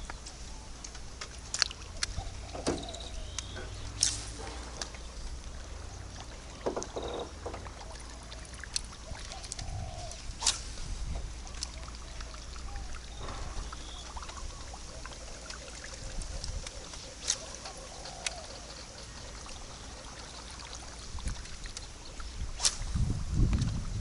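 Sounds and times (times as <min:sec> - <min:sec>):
water lapping around boat: 0:00.0 - 0:24.0
sharp knocks and clicks: 0:06.6 - 0:07.8.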